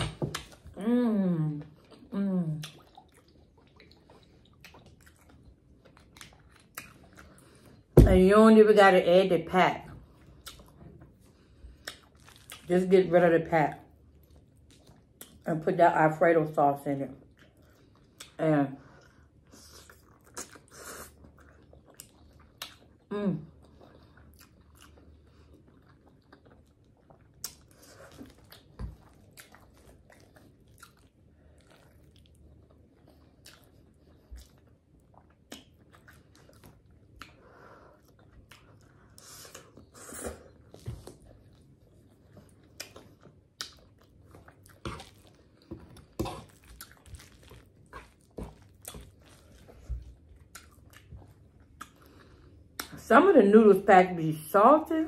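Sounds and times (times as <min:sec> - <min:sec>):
person chewing and slurping noodles: 0:01.8 - 0:07.9, 0:17.3 - 0:53.0.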